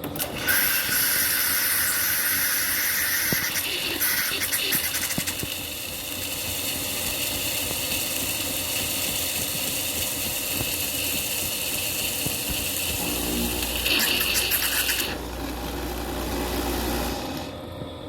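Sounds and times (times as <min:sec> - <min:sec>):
espresso machine hum and hiss: 0:00.0 - 0:18.0.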